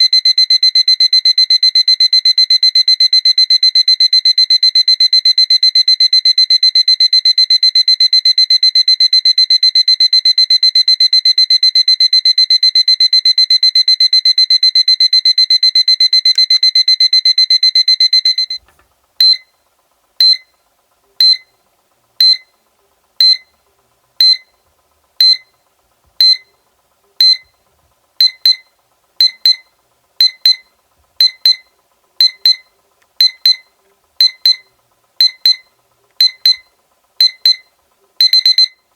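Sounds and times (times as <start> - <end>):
alarm clock beeping: 0.0 - 18.6, 21.2 - 21.5, 22.2 - 22.5, 23.2 - 23.5, 24.2 - 24.5, 25.2 - 25.5, 26.2 - 26.5, 27.2 - 27.4, 28.2 - 29.6, 30.2 - 38.8.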